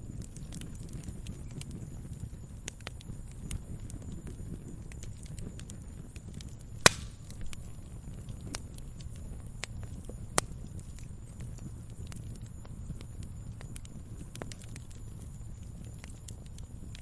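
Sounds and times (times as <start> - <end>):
loud fire pops: 0.0 - 17.0
wood fire crackling: 0.0 - 17.0.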